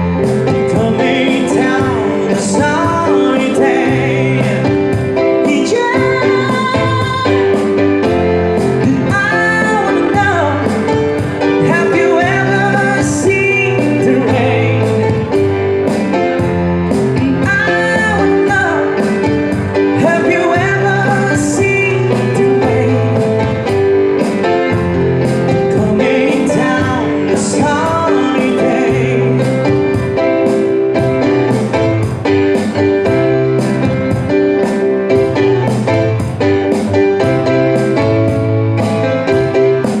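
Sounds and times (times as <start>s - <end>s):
person singing: 0.0s - 30.7s.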